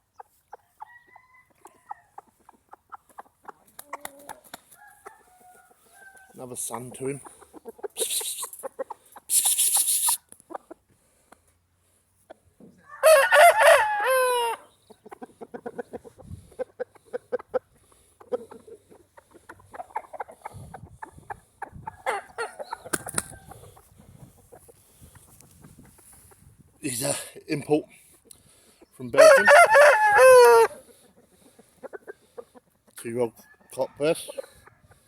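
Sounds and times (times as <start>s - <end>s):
chickens clucking: 0.0s - 35.0s
rooster crowing: 0.8s - 2.2s, 4.8s - 6.4s, 12.8s - 14.7s, 29.2s - 30.8s.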